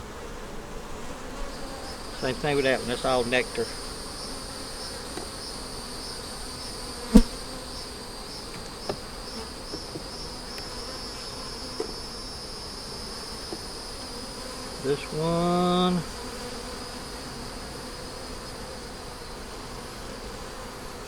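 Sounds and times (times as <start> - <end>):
pulsing insect chorus: 1.5 - 20.1
sharp knock: 7.1 - 7.4.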